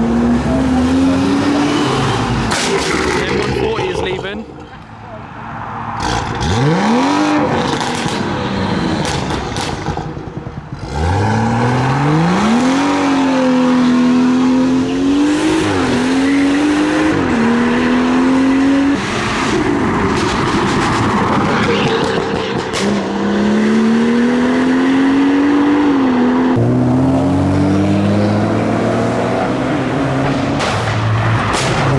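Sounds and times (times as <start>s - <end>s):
cars accelerating away: 0.0s - 31.9s.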